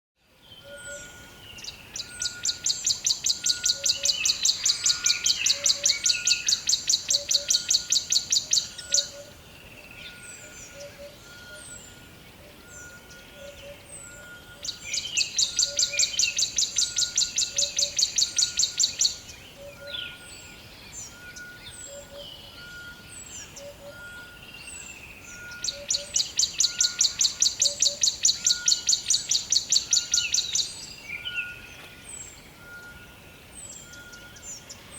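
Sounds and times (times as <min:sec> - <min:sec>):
bird chirps: 0:00.4 - 0:34.9.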